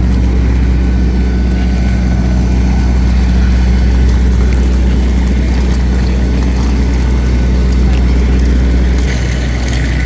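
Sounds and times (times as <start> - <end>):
aircraft cabin air drone: 0.0 - 10.0.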